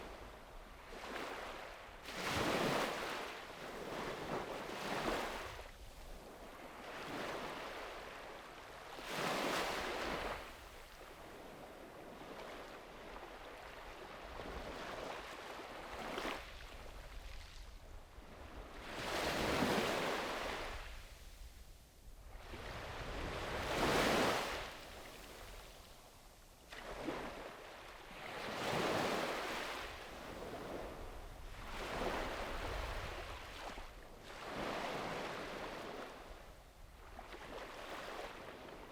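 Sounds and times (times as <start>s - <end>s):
sea waves breaking on beach: 1.0s - 5.6s, 22.4s - 25.5s, 26.7s - 36.2s.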